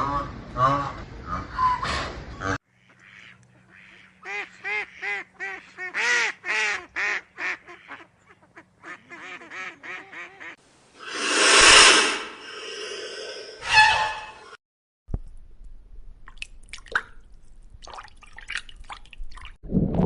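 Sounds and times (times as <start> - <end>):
loud breathy blow: 11.0 - 14.2.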